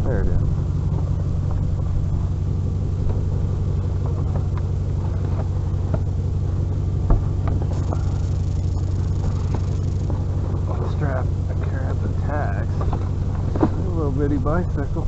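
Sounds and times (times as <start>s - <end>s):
vehicle engine idling: 0.0s - 15.0s
knocks and clatters of junk: 12.7s - 13.9s.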